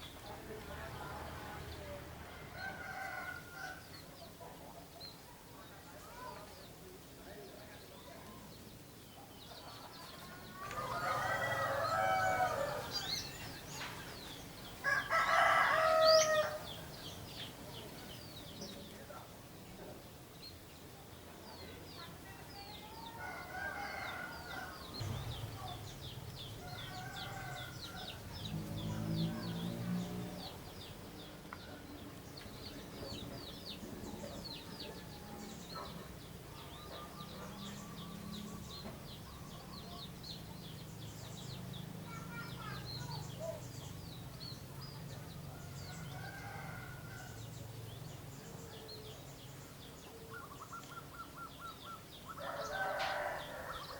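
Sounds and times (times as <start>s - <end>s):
small birds chirping: 0.0s - 53.9s
roosters crowing: 2.2s - 4.0s, 10.2s - 17.9s, 22.8s - 32.4s, 45.0s - 49.1s, 51.0s - 53.9s.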